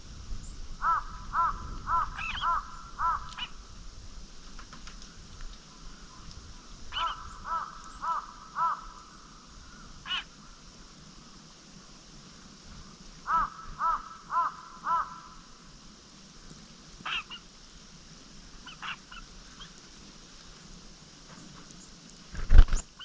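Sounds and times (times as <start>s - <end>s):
crow cawing: 0.8s - 3.6s, 6.9s - 10.4s, 13.2s - 15.6s, 17.0s - 17.4s.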